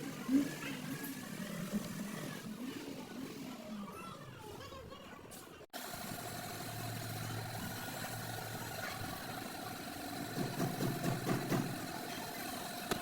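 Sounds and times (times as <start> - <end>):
motor running steadily: 5.8 - 13.0.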